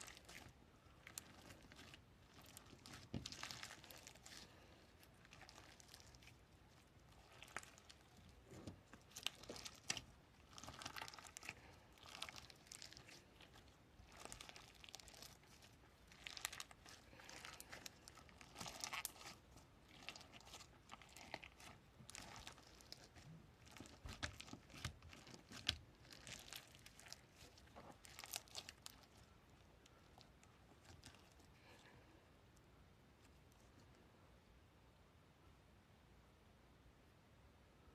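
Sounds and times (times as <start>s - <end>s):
material crinkling and crackling: 0.0s - 32.2s.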